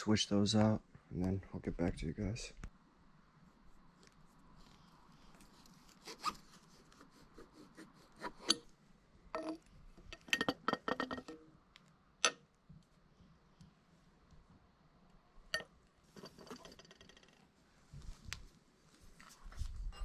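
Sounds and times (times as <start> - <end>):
metal parts clicking and clinking: 9.3 - 11.5, 15.5 - 17.4.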